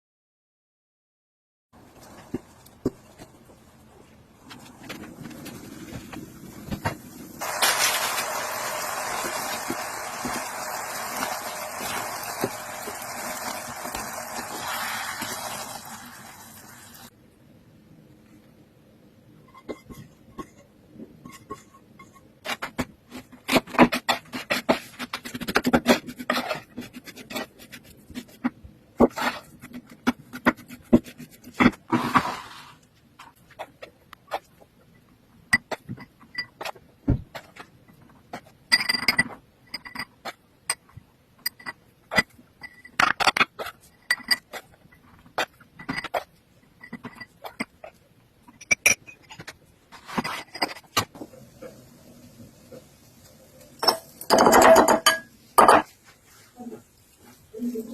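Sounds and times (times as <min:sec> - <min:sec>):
utensils and dishes knocking: 0:53.8 - 0:55.9.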